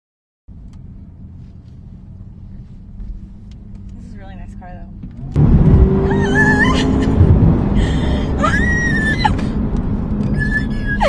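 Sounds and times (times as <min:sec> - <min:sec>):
car engine accelerating: 0:00.5 - 0:11.0
woman screaming: 0:06.0 - 0:07.0, 0:08.4 - 0:09.4.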